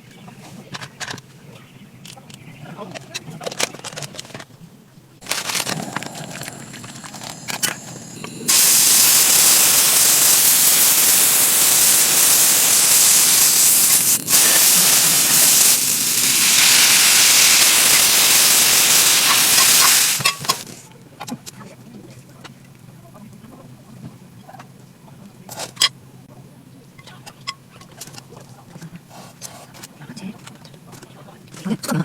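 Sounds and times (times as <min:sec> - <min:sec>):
loud steady hiss: 0:05.2 - 0:20.7.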